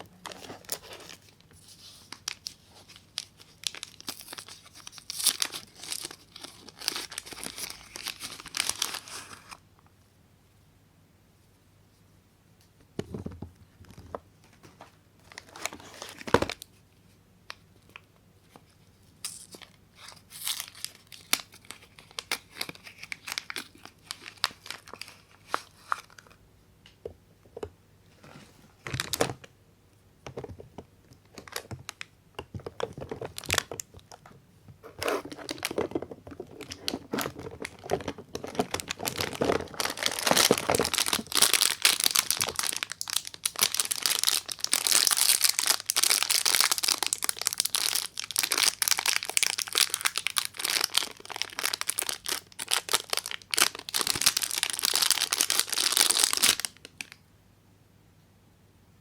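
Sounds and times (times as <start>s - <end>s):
wrappers crinkling: 0.2s - 9.6s, 19.2s - 26.4s, 35.1s - 57.2s.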